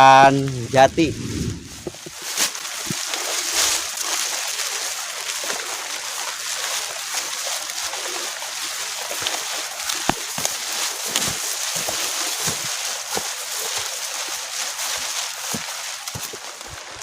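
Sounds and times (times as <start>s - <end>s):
light drizzle hiss: 0.0s - 17.0s.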